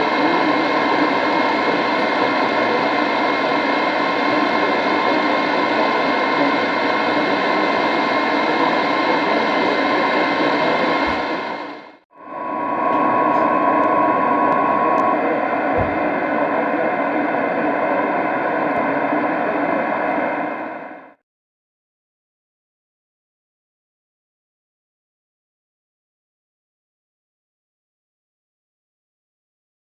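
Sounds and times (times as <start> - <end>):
faint steady tones: 0.0 - 21.2
radio static hiss: 0.0 - 21.2.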